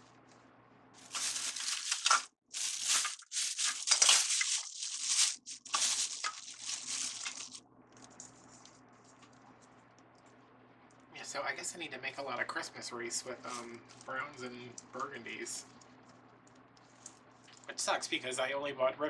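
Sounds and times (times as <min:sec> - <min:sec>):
mesh crinkling: 0:00.0 - 0:10.4, 0:13.3 - 0:17.7.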